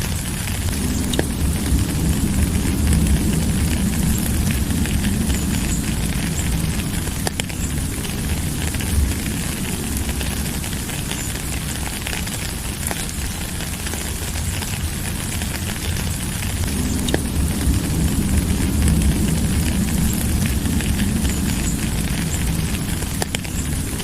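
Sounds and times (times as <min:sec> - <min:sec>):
deep rumble: 0:00.0 - 0:24.0
steady rain falling: 0:00.0 - 0:24.0.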